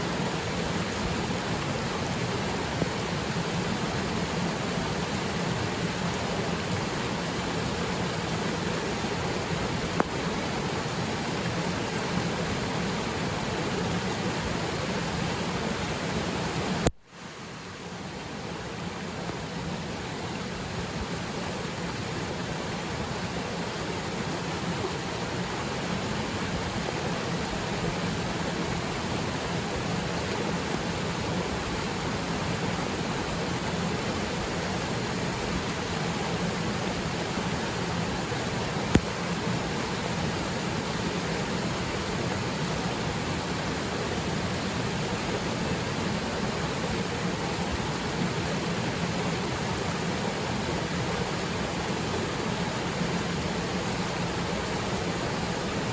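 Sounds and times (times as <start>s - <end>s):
rain falling on water: 0.0s - 55.9s
click: 38.9s - 39.1s.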